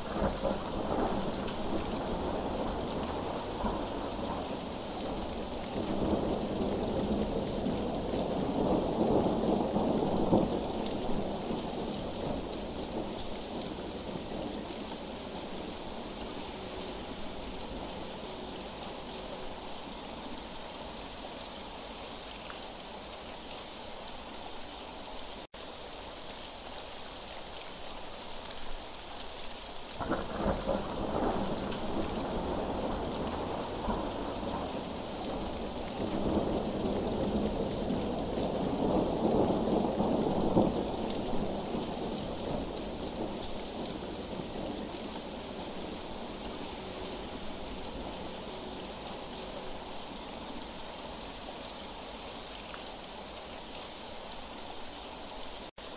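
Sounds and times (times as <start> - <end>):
heavy rain falling: 0.0 - 55.9
rolling thunder: 30.0 - 49.0.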